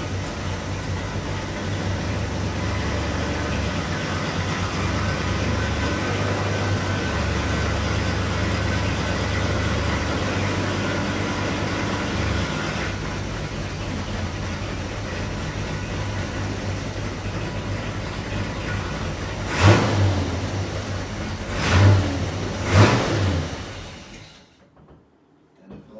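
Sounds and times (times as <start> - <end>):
car engine idling: 0.0 - 24.4.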